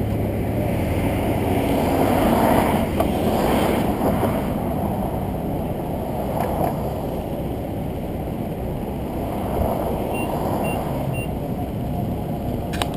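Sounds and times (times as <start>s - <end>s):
car road and tyre noise: 0.0s - 12.9s
short electronic beeps: 10.1s - 11.3s.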